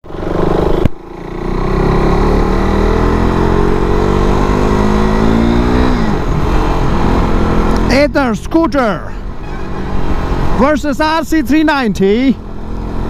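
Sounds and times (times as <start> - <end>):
motorcycle engine accelerating: 0.0 - 8.5, 12.1 - 13.0.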